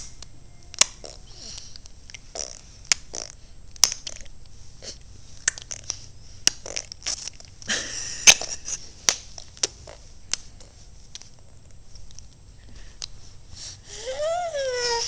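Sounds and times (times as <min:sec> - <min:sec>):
baby clicking tongue and lips: 0:00.2 - 0:04.3, 0:05.4 - 0:07.6
breathy noise: 0:01.0 - 0:07.4, 0:12.6 - 0:15.0.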